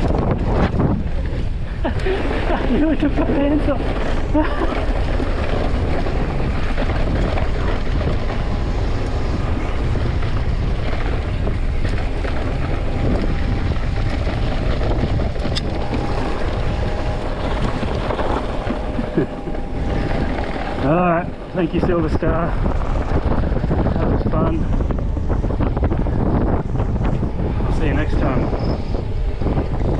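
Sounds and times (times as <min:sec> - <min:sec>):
bike clicks and rattles: 0:00.0 - 0:21.0
bike tyres rumbling on dirt: 0:00.0 - 0:29.9
wind on microphone: 0:00.0 - 0:29.9.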